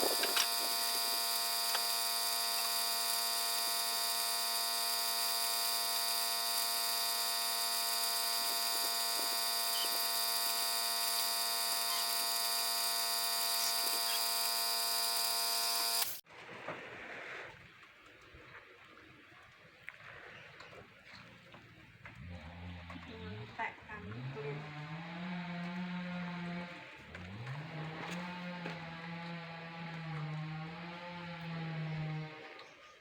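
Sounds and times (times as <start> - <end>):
power tool motor whining: 0.0 - 16.2, 22.5 - 32.7.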